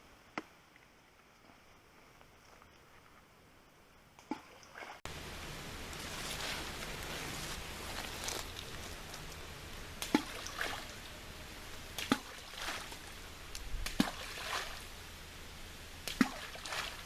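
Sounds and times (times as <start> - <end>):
faint outdoor background: 0.0 - 17.0
soft splash: 4.2 - 5.0, 10.0 - 11.1, 11.9 - 13.2, 13.8 - 14.9, 16.0 - 17.0.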